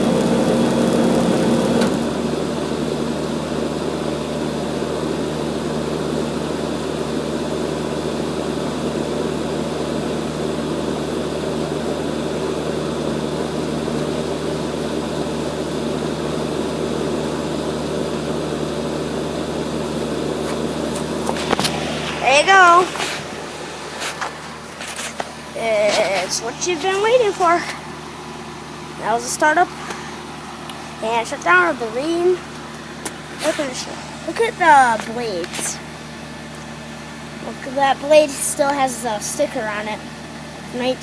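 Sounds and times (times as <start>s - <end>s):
steady machine whirring: 0.0s - 2.5s, 19.4s - 36.6s
compressor hum: 0.0s - 41.0s.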